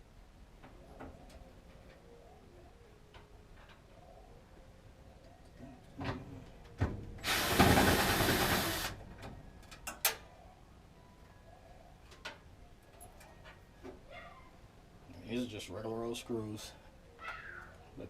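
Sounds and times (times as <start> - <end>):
power drill running: 7.2 - 8.9.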